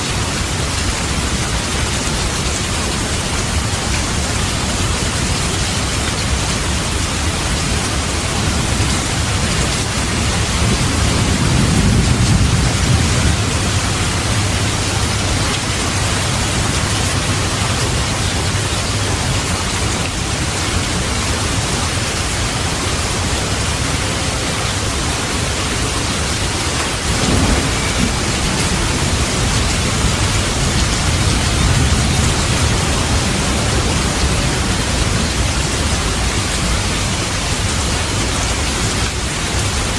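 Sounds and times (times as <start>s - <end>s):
heavy rain: 0.0s - 39.9s
rolling thunder: 8.2s - 18.6s, 26.0s - 38.6s.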